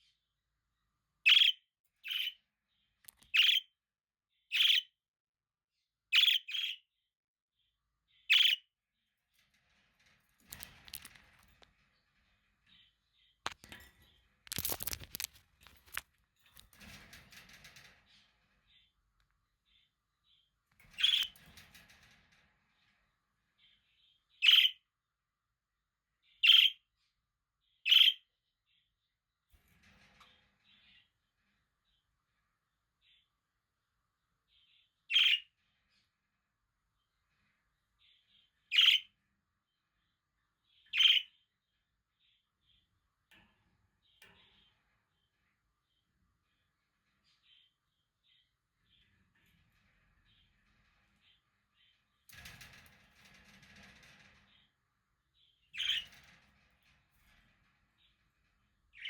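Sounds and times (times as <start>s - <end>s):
scratchy rattle: 9.2s - 19.9s, 20.5s - 23.8s, 48.6s - 59.0s.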